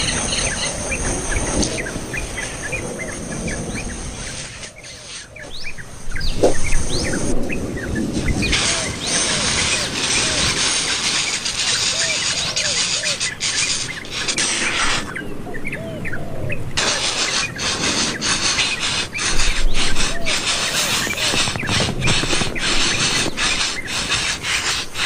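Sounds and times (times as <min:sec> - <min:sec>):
birds chirping: 0:00.0 - 0:25.0
steady outdoor hiss: 0:00.0 - 0:25.0
scattered clicks: 0:16.8 - 0:25.0.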